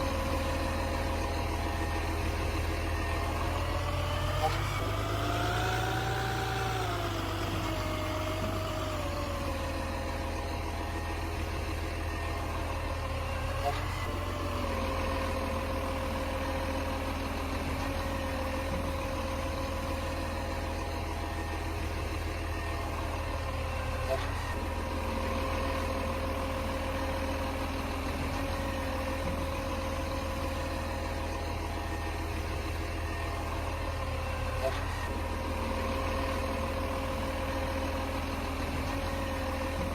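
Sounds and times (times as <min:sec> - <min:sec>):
whining tone: 0:00.0 - 0:27.4
garbage truck engine rumbling: 0:00.0 - 0:39.9.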